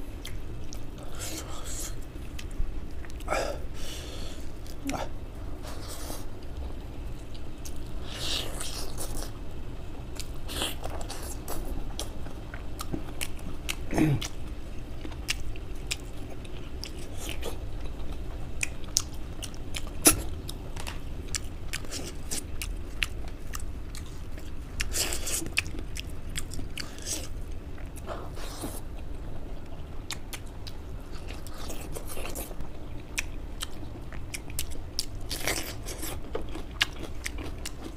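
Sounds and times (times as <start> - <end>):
wet chewing and lip smacking: 18.6 - 37.9.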